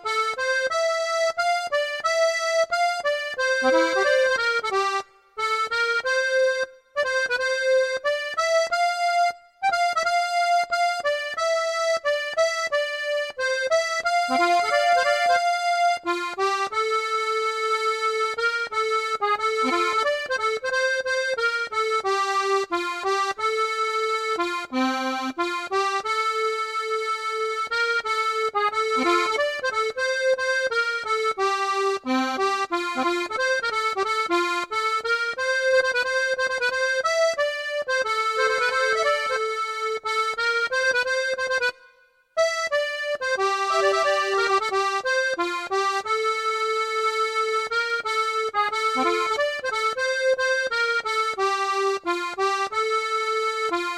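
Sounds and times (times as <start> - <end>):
accordion melody: 0.0 - 53.9.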